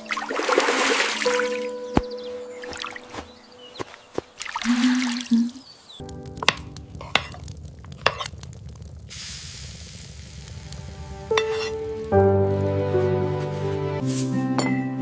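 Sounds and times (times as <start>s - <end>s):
soft background music: 0.0s - 5.2s, 6.0s - 7.5s, 10.8s - 15.0s
sizzling in a pan: 6.4s - 12.2s.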